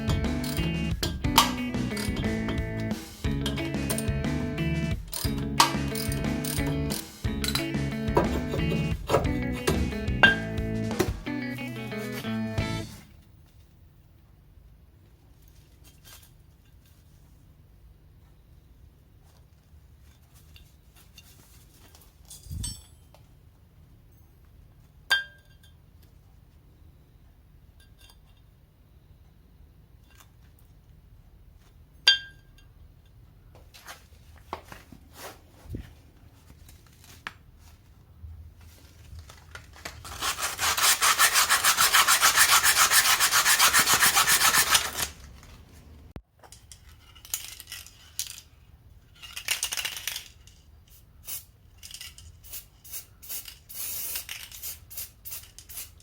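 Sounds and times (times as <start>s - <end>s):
fast rasping strokes: 40.0s - 45.2s.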